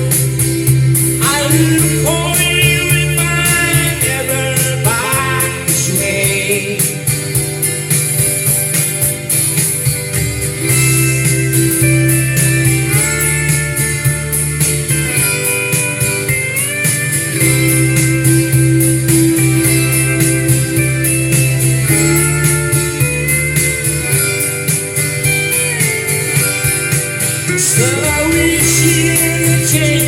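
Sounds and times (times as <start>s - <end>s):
country-folk band music: 0.0s - 30.0s
strummed guitar rhythm: 0.0s - 30.0s
gliding held guitar notes: 7.6s - 30.0s.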